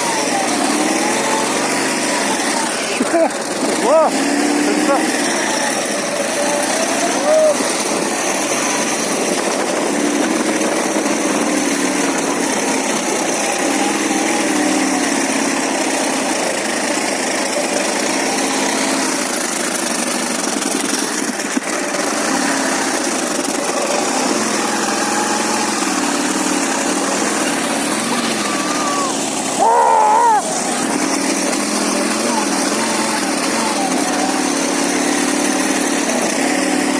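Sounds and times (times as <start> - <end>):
motorcycle engine running: 0.0 - 36.9.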